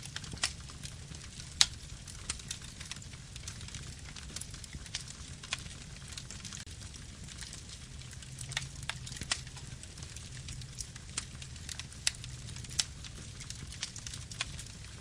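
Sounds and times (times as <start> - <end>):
burning wood crackling and popping: 0.0 - 15.0
flames rumbling: 0.0 - 15.0.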